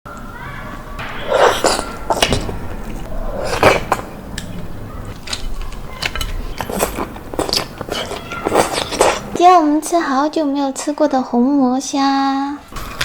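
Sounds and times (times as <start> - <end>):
sucking slurps: 6.4 - 9.4.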